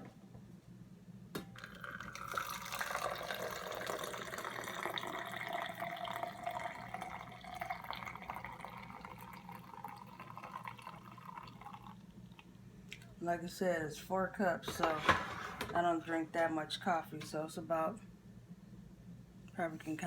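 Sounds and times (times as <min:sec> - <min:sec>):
coffee pouring into a mug: 0:01.6 - 0:12.4.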